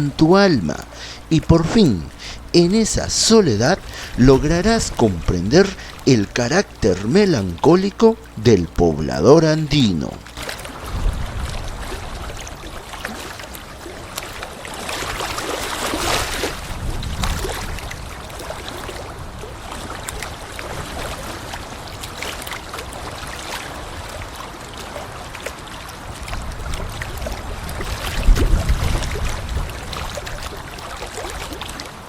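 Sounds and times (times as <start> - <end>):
waves washing onto sand: 0.0 - 32.0
wind rumbling on microphone: 10.2 - 12.8, 16.2 - 21.0, 26.2 - 30.7.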